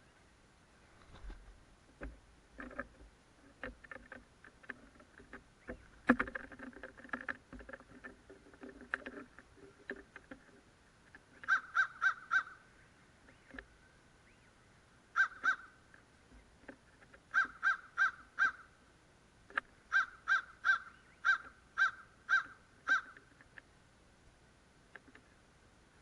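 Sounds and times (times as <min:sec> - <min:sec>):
crows cawing: 0:11.4 - 0:12.6, 0:15.1 - 0:15.8, 0:17.3 - 0:18.7, 0:19.9 - 0:23.2.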